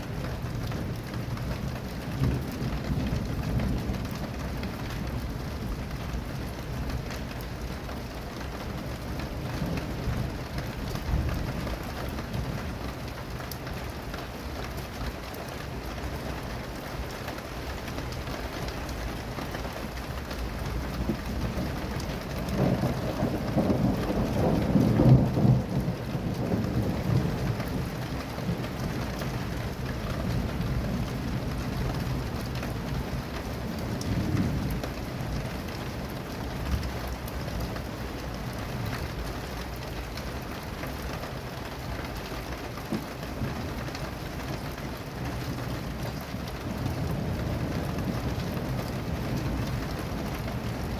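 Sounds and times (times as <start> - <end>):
steady rain falling: 0.0 - 50.9
thunder rolling: 21.0 - 35.4.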